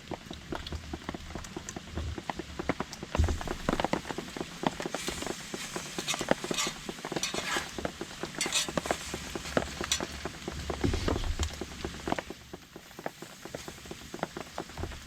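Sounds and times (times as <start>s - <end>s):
rain pattering on a tarp: 0.0s - 15.0s
scraping of handling: 3.3s - 10.3s.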